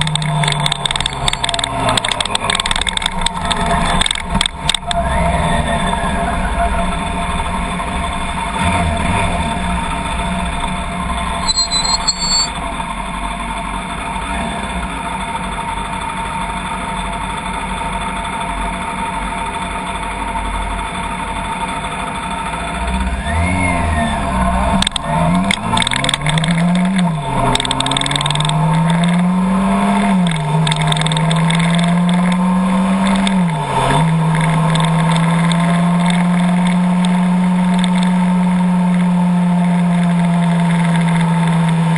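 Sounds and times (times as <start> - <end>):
low rumble: 0.0 - 13.5
vehicle engine accelerating: 0.0 - 16.7, 21.4 - 41.9.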